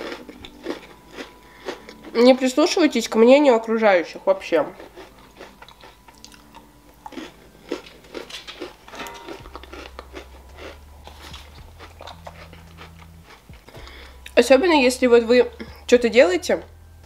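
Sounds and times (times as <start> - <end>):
crunching and chewing cookie: 0.0 - 2.7, 4.6 - 14.4.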